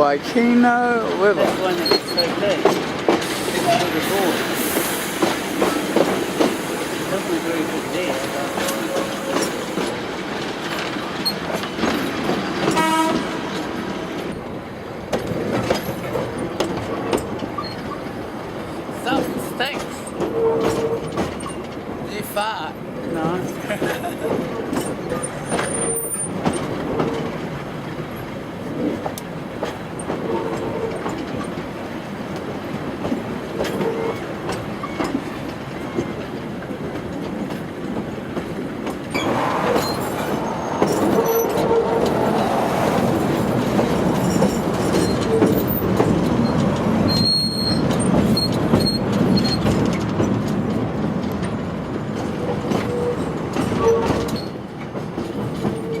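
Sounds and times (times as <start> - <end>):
train rumbling on track: 0.0 - 56.0
wheels clicking over rail joints: 0.3 - 4.3, 15.0 - 22.4, 23.1 - 39.5, 40.9 - 56.0
high wheel squeals: 39.1 - 45.8.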